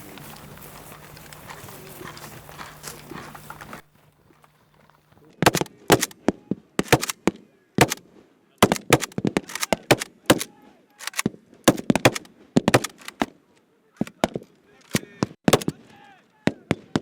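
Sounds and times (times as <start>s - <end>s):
rifle shots: 5.4s - 6.2s, 6.8s - 8.0s, 8.6s - 13.3s, 14.9s - 15.8s.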